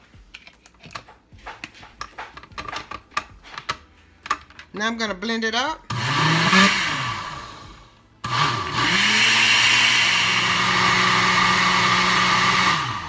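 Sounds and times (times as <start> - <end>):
blender motor running: 5.9 - 13.0.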